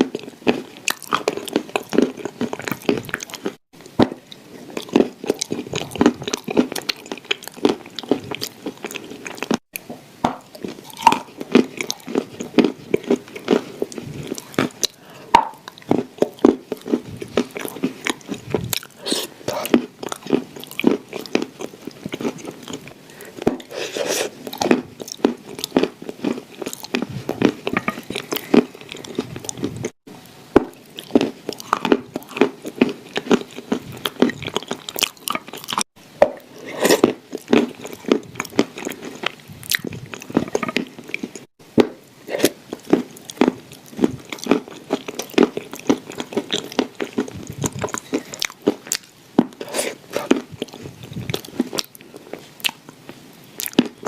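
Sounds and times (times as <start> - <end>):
crunching and chewing cookies: 0.0 - 54.0.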